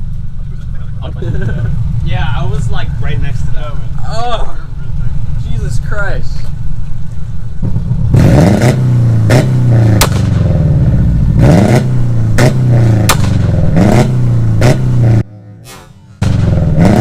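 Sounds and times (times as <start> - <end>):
exhaust bangs: 0.0 - 17.0
car engine on rev limiter: 11.3 - 17.0.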